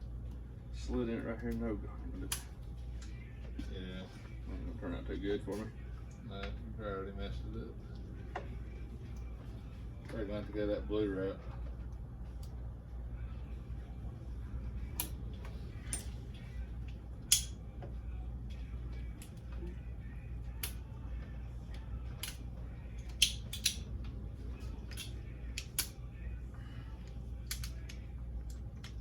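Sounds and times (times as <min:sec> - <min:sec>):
low steady hum: 0:00.0 - 0:29.0
hand tools clicking and tapping: 0:17.3 - 0:17.9, 0:22.2 - 0:24.1, 0:24.8 - 0:26.0, 0:27.0 - 0:29.0.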